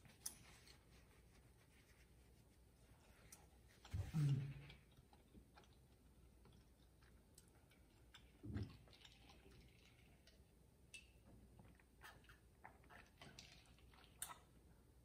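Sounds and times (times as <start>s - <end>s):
person chewing: 4.1s - 10.0s.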